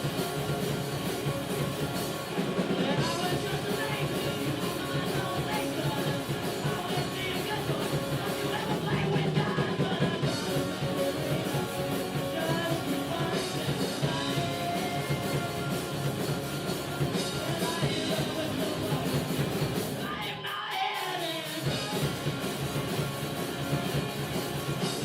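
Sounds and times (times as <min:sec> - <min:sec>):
rock music with singing: 0:00.0 - 0:25.0.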